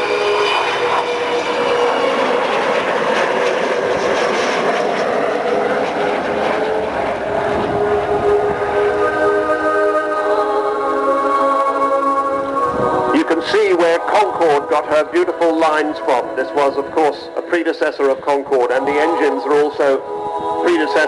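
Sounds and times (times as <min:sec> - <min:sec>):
loud jet engine roar: 0:00.0 - 0:21.0
faint music over loudspeakers: 0:06.4 - 0:21.0.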